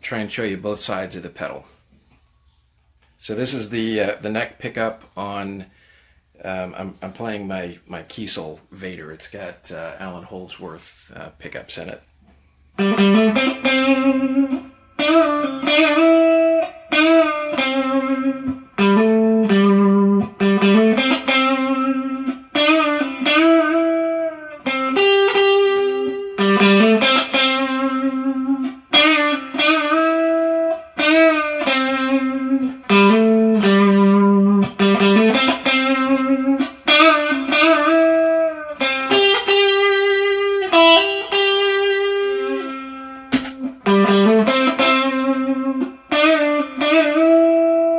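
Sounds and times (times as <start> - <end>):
overdriven electric guitar lead: 12.8 - 47.9.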